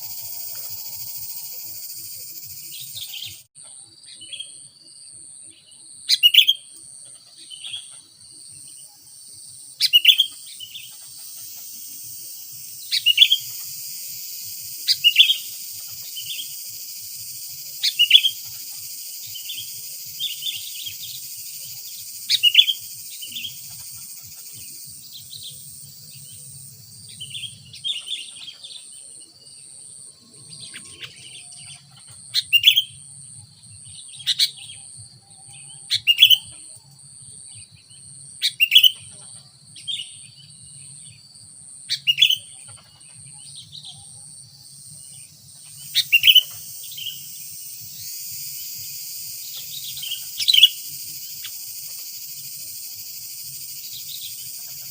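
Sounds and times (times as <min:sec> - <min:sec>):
high-pitched insect drone: 0:00.0 - 0:03.5, 0:07.9 - 0:37.0, 0:43.5 - 0:54.9
bird chirping: 0:00.0 - 0:54.9.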